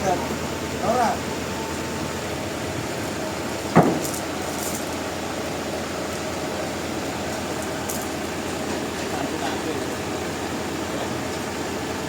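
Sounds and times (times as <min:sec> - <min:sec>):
mechanical running noise: 0:02.4 - 0:11.3
sharp ringing knock: 0:03.8 - 0:04.2.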